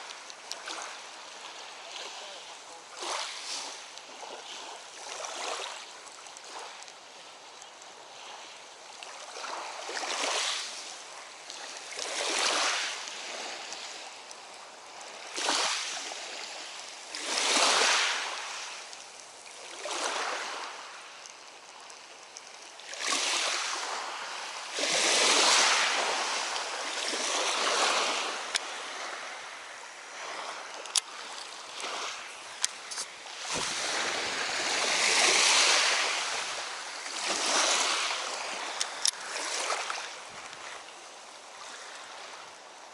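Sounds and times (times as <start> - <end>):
lake waves washing on shore: 0.0 - 42.9
faint clicks: 38.7 - 39.2.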